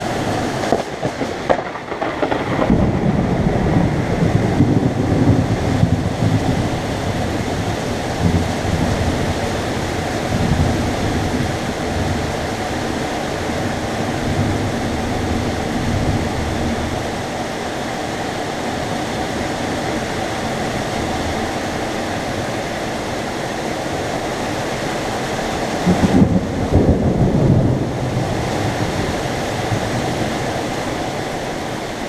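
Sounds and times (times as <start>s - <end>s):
thunder crackle and rumble: 0.0s - 17.6s, 25.5s - 32.0s
heavy rain hissing: 0.0s - 32.0s.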